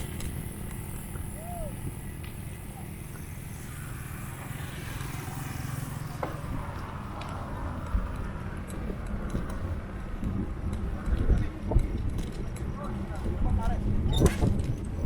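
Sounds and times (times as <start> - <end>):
road traffic hiss: 0.0 - 10.2
wind rumbling on microphone: 0.0 - 15.0.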